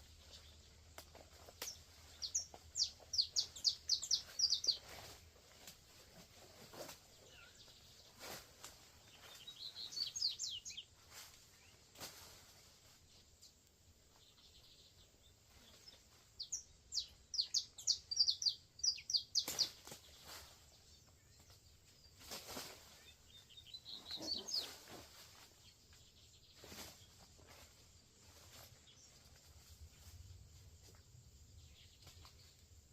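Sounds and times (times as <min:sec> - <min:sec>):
birds chirping: 0:01.4 - 0:05.1, 0:09.0 - 0:10.9, 0:14.1 - 0:22.3, 0:22.9 - 0:25.0.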